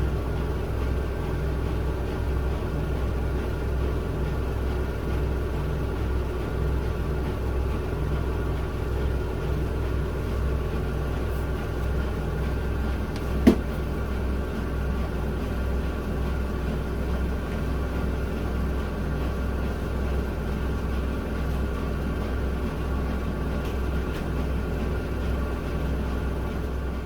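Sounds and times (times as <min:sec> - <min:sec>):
washing machine spinning: 0:00.0 - 0:27.0.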